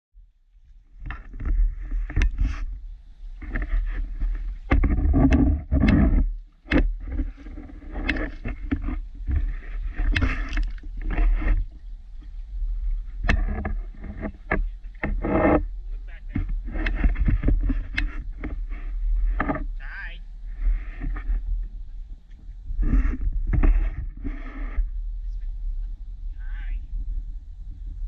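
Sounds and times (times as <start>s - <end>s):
steady low rumble: 0.2s - 28.0s.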